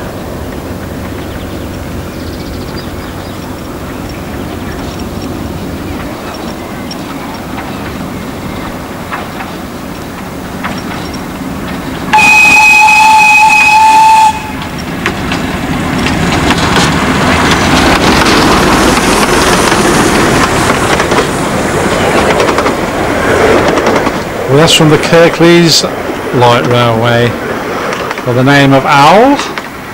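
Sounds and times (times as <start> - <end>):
train rumble: 0.0 - 29.9
wheels clicking over rail joints: 0.0 - 29.9
shrill train whistle: 12.1 - 14.6.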